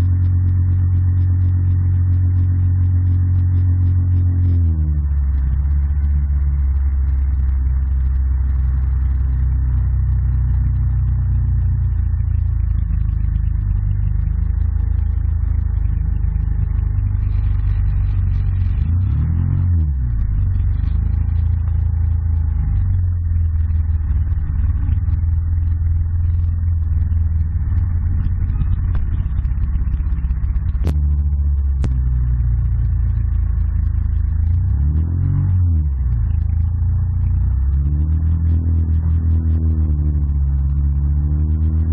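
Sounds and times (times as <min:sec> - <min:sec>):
quad bike engine running: 0:00.0 - 0:41.9
sharp clicks: 0:23.6 - 0:32.3.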